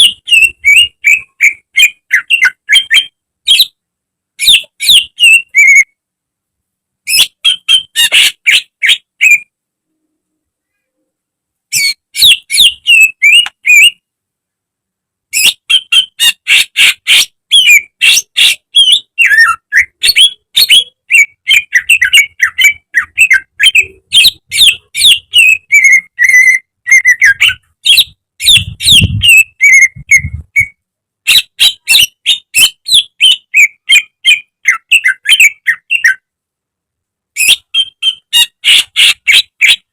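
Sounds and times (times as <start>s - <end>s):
bird singing whistled notes: 0.0s - 3.8s, 4.4s - 5.9s, 11.7s - 14.0s, 15.4s - 36.2s, 37.4s - 39.8s.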